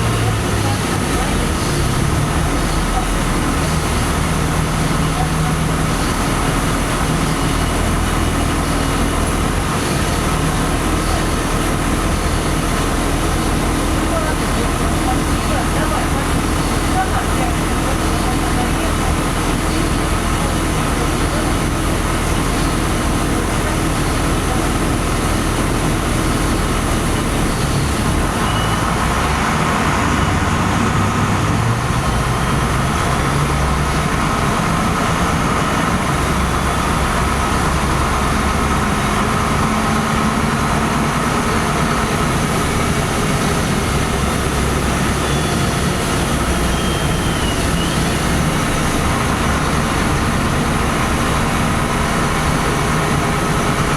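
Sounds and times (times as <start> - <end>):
bus diesel engine: 0.0 - 53.9
road and cabin noise: 0.0 - 53.9.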